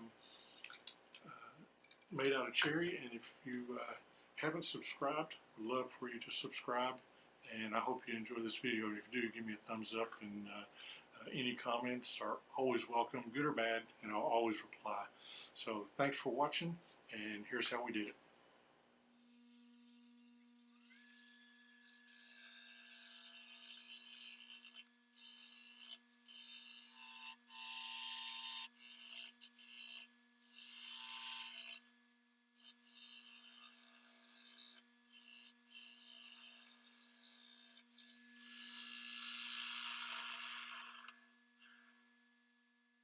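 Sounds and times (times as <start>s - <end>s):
wood lathe motor hum: 19.2s - 31.9s, 32.6s - 41.2s
tool scraping spinning wood: 34.4s - 41.2s.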